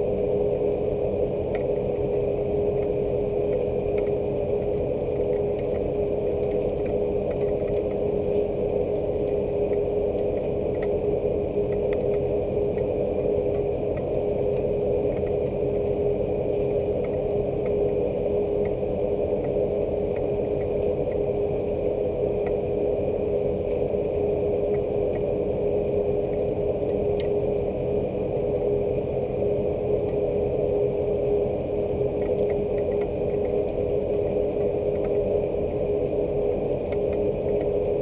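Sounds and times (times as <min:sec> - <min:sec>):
low mechanical hum: 0:00.0 - 0:38.0
faint ticks: 0:03.5 - 0:08.5, 0:09.2 - 0:11.0, 0:11.7 - 0:12.9, 0:13.5 - 0:15.6, 0:16.8 - 0:17.8, 0:32.2 - 0:33.8.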